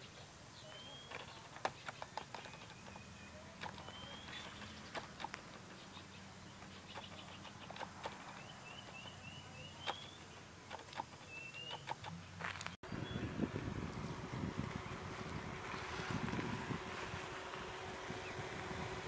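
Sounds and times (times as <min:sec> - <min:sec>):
small bird chirping: 0:00.0 - 0:13.4.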